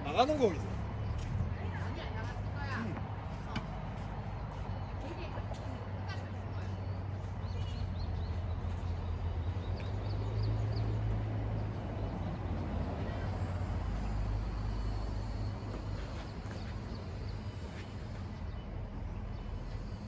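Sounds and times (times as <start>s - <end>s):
low outdoor background rumble: 0.0s - 20.0s.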